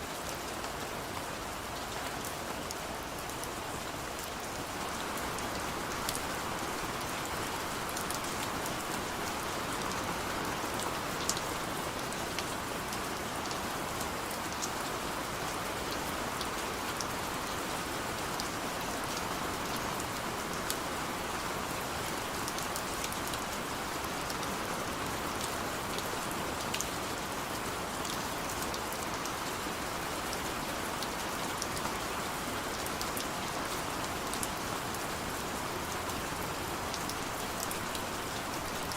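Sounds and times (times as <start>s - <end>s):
raindrops ticking close by: 28.0s - 38.9s.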